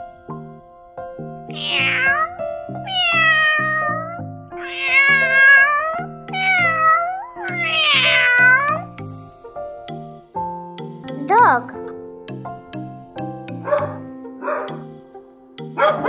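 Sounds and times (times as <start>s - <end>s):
cat meowing: 1.5s - 8.9s
music with repeating beat: 9.0s - 11.4s, 12.3s - 16.0s.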